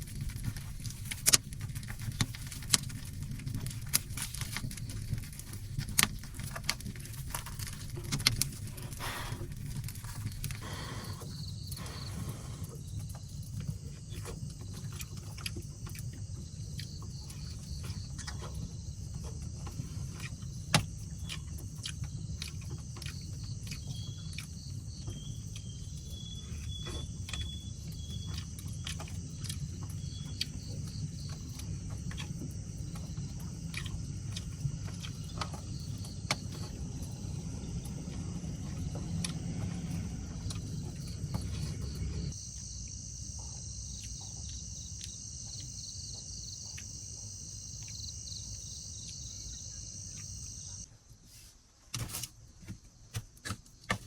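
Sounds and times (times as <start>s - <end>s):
faint high insect trill: 0.0s - 51.2s
steady low hum: 0.0s - 51.2s.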